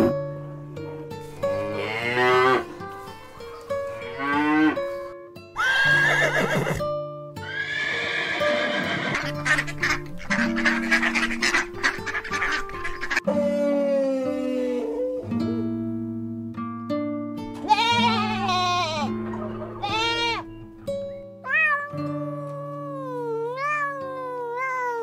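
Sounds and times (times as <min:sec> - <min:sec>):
background music: 0:00.0 - 0:24.7
long high quavering calls: 0:08.6 - 0:13.2.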